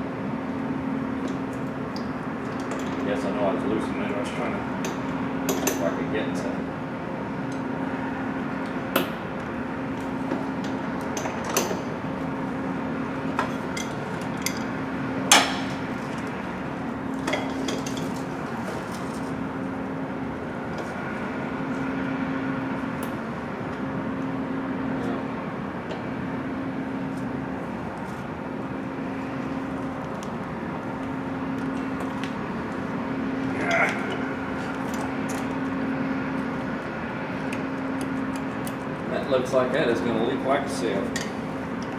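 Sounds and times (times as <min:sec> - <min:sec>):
steady hum: 0:00.0 - 0:41.9.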